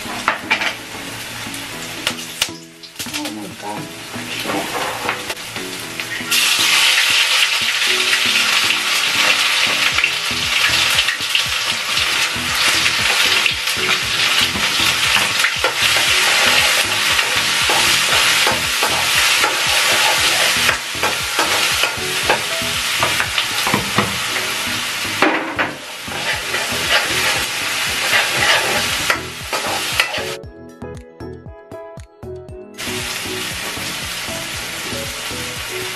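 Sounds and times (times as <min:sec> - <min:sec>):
food sizzling in hot oil: 0:00.0 - 0:30.4, 0:32.8 - 0:35.9
spatula scraping pan: 0:12.1 - 0:24.6, 0:25.6 - 0:30.3.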